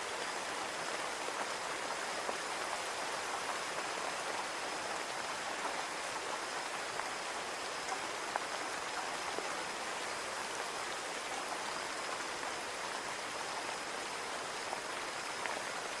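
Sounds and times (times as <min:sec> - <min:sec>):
rain on a window pane: 0:00.0 - 0:16.0.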